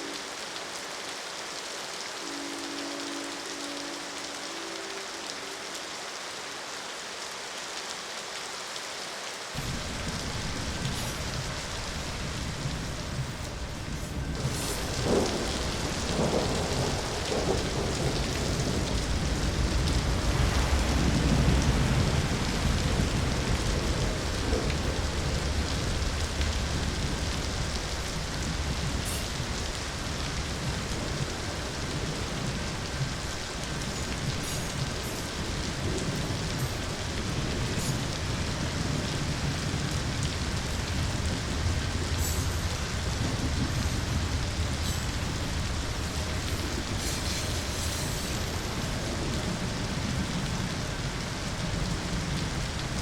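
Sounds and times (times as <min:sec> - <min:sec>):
steady rain: 0:00.0 - 0:53.0
low roll of thunder: 0:09.6 - 0:53.0.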